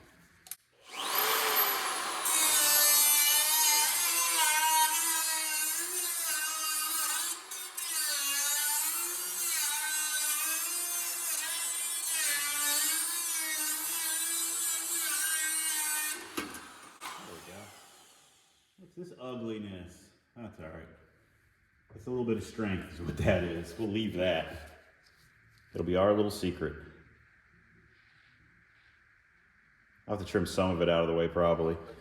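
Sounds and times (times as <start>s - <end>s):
grinder cutting sheet steel: 0.8s - 18.6s.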